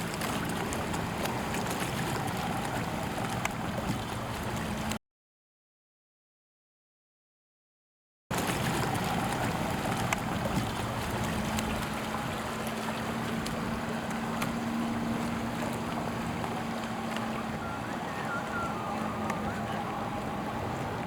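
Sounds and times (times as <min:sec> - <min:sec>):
motorboat engine hum: 0:00.0 - 0:05.0, 0:08.3 - 0:21.0
water rushing: 0:00.0 - 0:05.0, 0:08.3 - 0:21.0.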